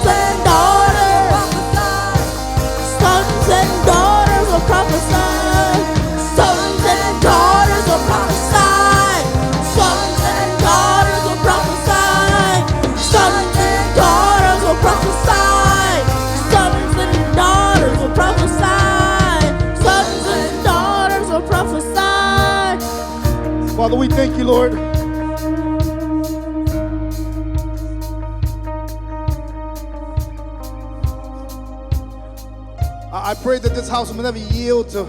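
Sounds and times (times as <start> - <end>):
person singing: 0.0 - 26.9
band with bass and drums: 0.0 - 35.0.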